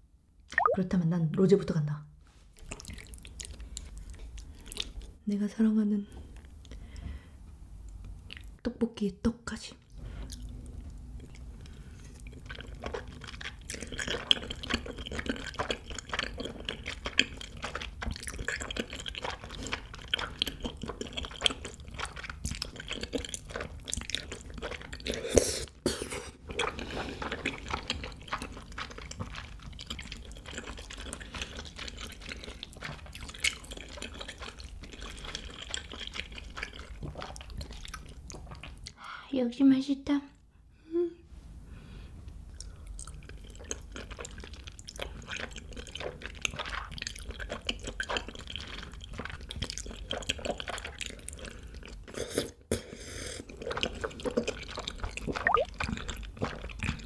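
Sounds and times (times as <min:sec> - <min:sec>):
wet chewing: 0:02.6 - 0:05.2, 0:10.1 - 0:25.4, 0:26.4 - 0:39.0, 0:42.5 - 0:52.6, 0:53.4 - 0:57.0
sticky mouth clicks: 0:55.4 - 0:56.0.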